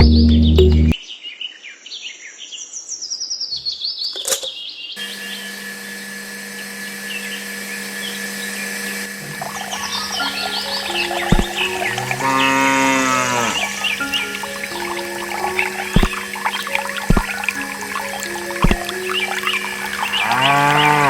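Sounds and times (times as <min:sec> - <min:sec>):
birds chirping: 0:07.2 - 0:21.0.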